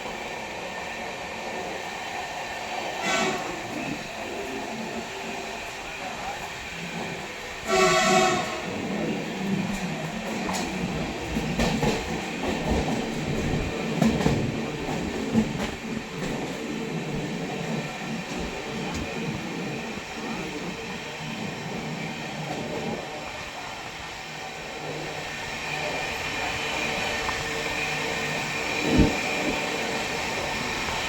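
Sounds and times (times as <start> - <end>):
train clattering and knocks: 0.0 - 31.0
train wheels rumbling on rails: 0.0 - 31.0.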